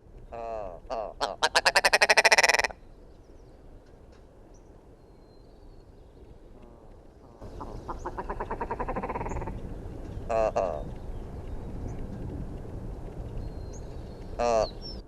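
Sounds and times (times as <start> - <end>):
animal rattling croak-like call: 0.4 - 2.8, 6.7 - 11.1, 13.4 - 15.0.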